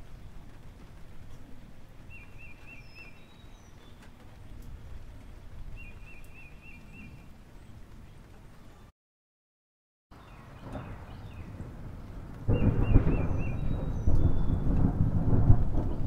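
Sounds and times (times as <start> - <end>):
bird calling: 2.1 - 4.1, 12.5 - 14.6.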